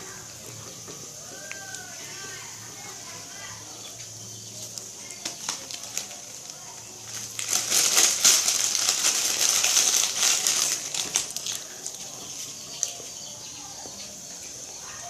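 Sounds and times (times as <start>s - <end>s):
crackers crunching and chewing: 0.4s - 2.0s, 4.0s - 13.3s.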